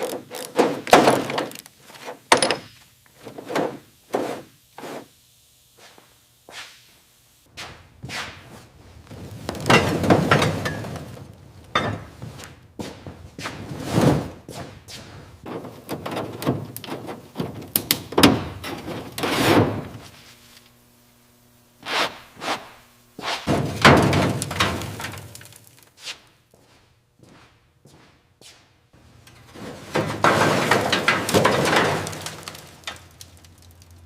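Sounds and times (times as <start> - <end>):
metal parts knocking and scraping: 0.0 - 3.7, 29.2 - 33.2
faint steady hum: 0.0 - 13.4, 14.0 - 27.8.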